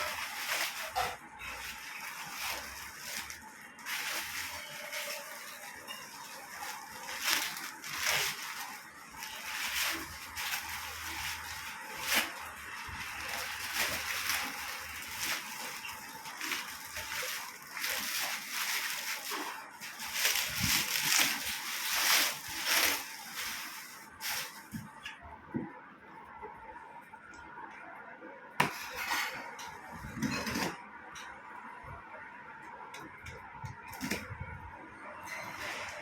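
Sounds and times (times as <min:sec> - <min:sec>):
packaging rustling and crinkling: 0:00.0 - 0:25.2, 0:28.6 - 0:30.9.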